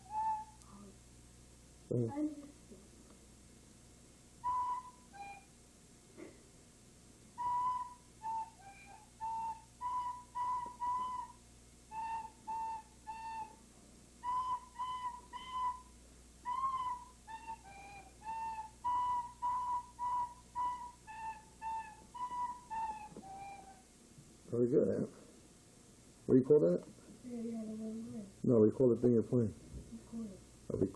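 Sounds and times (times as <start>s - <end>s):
recorder playing a simple tune: 0.0s - 0.8s, 4.4s - 5.6s, 7.4s - 13.6s, 14.2s - 23.9s.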